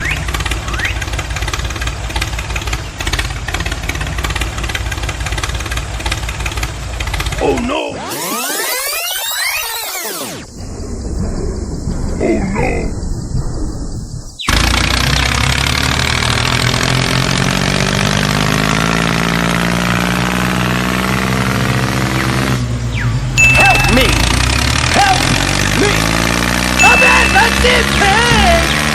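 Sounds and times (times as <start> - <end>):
small tractor engine chugging: 0.0 - 7.7, 14.5 - 19.0, 22.7 - 28.9.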